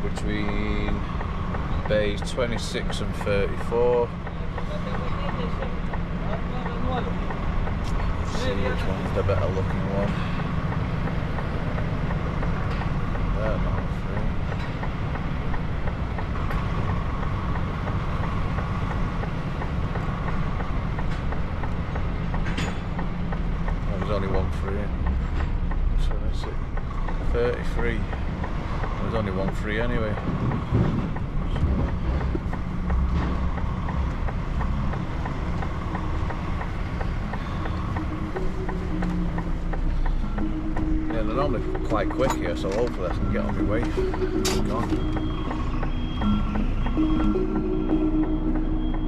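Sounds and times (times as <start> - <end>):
faint regular ticking: 0.0 - 49.0
truck diesel engine rumble: 0.0 - 49.0.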